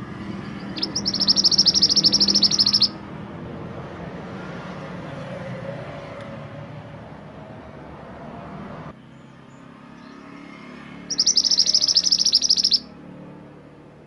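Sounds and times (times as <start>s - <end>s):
songbird high-pitched trill: 0.6s - 3.0s, 11.1s - 12.9s.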